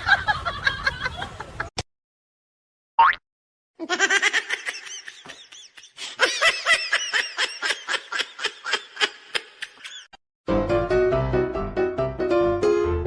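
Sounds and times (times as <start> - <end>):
person laughing: 3.8 - 10.1
piano music: 10.5 - 13.0.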